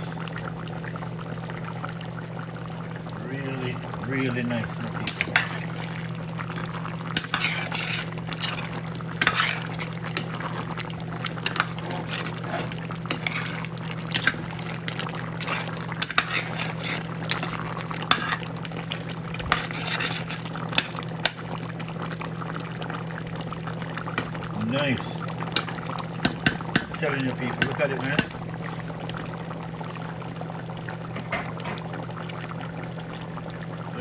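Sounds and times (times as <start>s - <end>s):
stew bubbling and popping: 0.0s - 34.0s.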